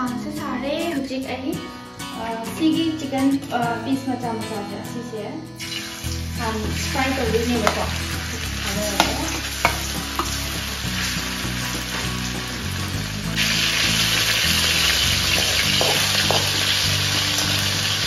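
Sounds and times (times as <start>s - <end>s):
chicken sizzling in hot oil: 5.6s - 18.0s.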